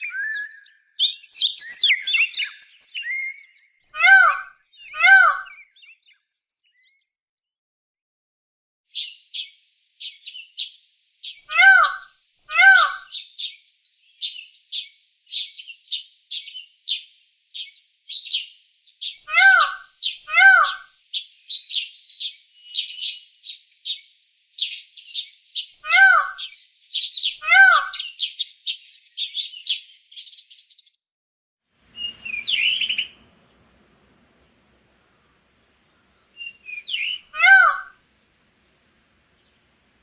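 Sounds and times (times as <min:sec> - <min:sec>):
sharp bird calls: 0:00.0 - 0:06.0, 0:11.3 - 0:13.5, 0:19.0 - 0:20.9, 0:24.6 - 0:30.5, 0:31.9 - 0:33.3, 0:35.9 - 0:38.0
birds chirping: 0:00.0 - 0:07.0, 0:09.0 - 0:16.7, 0:17.6 - 0:30.7, 0:31.9 - 0:38.0, 0:38.9 - 0:40.0.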